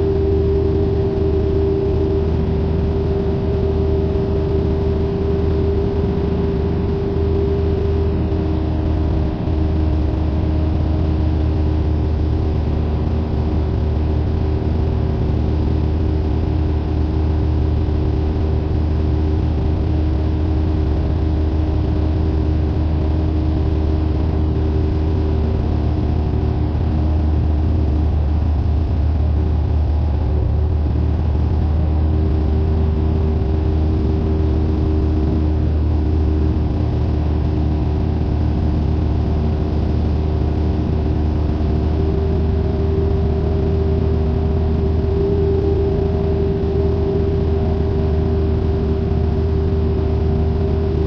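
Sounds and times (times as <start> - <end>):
propeller airplane engine drone: 0.0 - 51.0.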